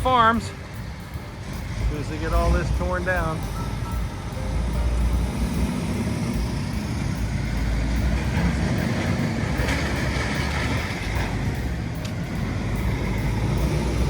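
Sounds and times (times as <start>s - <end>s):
motor vehicle rumble: 0.0s - 14.0s.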